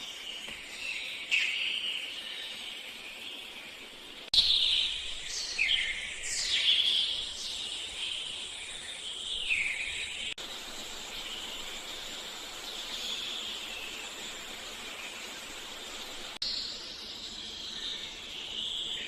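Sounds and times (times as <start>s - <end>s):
bird chirp: 0.0s - 19.0s
river water flowing: 10.4s - 16.4s.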